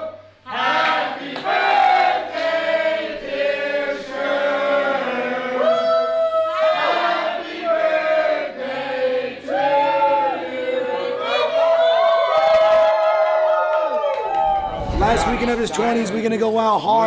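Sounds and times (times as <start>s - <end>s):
choir chanting long notes: 0.4s - 5.7s, 6.6s - 11.4s.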